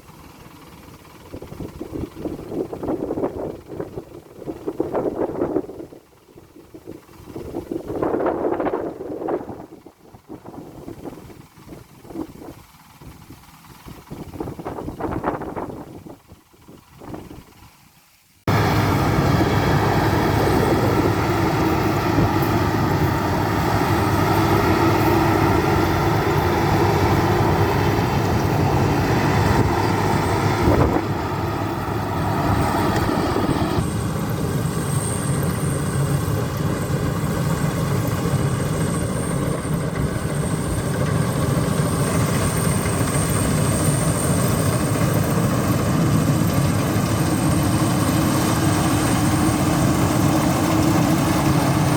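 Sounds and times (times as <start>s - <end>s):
combine harvester drone: 0.0s - 51.9s.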